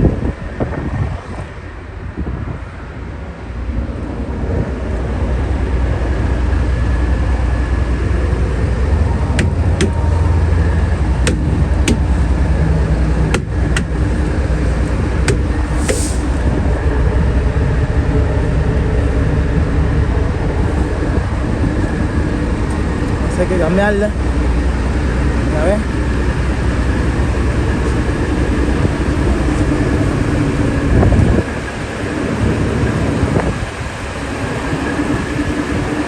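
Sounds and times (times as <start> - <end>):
diesel truck engine rumbling: 0.0 - 36.0
air hiss: 15.6 - 16.5.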